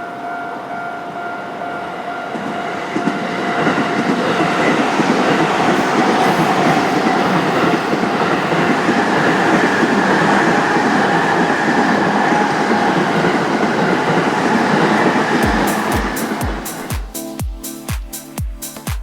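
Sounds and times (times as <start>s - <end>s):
train wheels rumbling on rails: 1.4s - 17.2s
deep music beats: 15.4s - 19.0s.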